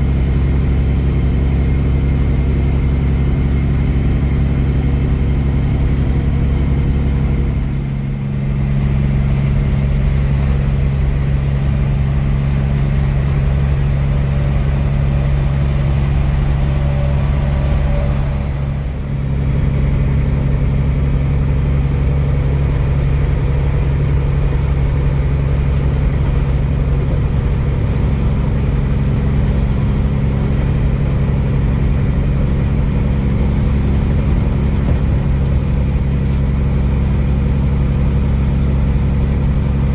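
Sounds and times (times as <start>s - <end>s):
truck diesel engine running: 0.0s - 39.9s.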